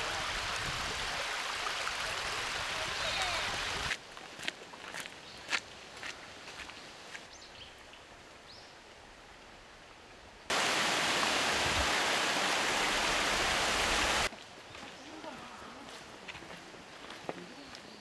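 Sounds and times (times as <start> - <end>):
stream water rushing: 0.0 - 4.0, 10.5 - 14.3.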